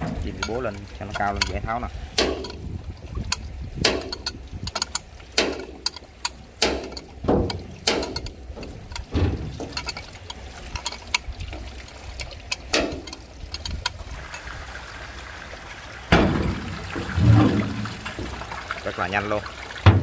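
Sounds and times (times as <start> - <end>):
low engine hum: 14.0 - 20.0.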